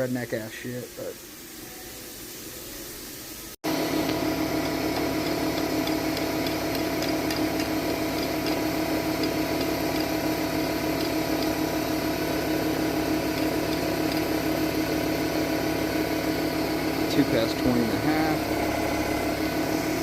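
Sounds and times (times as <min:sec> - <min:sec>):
machine whirring: 0:03.7 - 0:20.0.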